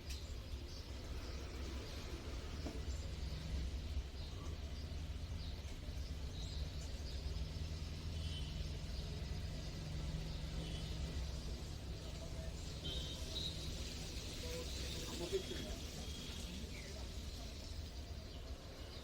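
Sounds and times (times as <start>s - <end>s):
faint bird chirps: 4.2s - 11.5s.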